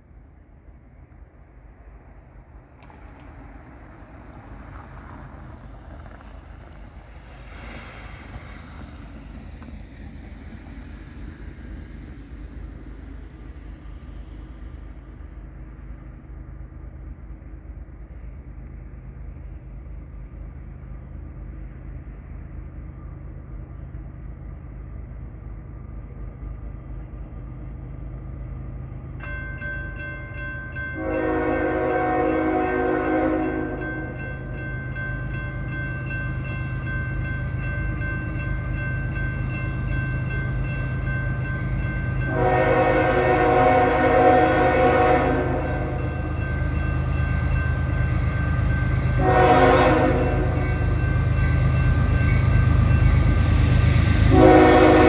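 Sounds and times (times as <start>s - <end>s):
diesel locomotive rumbling: 0.0s - 55.0s
crossing bell ringing: 29.2s - 55.0s
train air horn blasts: 31.0s - 34.2s, 42.2s - 46.3s, 48.4s - 50.9s, 54.2s - 55.0s.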